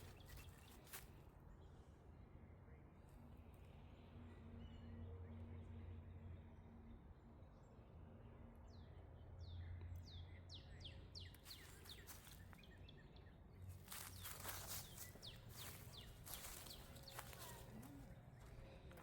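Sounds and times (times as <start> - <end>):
songbird chirping: 0.0 - 1.2, 9.5 - 19.0
footsteps crunching: 11.5 - 12.6, 13.7 - 19.0.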